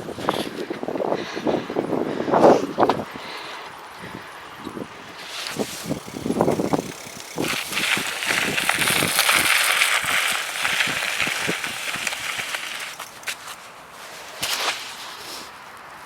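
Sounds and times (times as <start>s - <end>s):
bicycle tyres rolling over snow: 4.7s - 16.0s.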